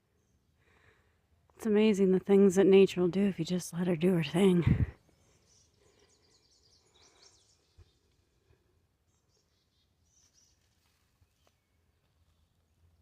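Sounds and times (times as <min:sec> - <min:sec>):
small birds chirping: 0:02.7 - 0:13.0.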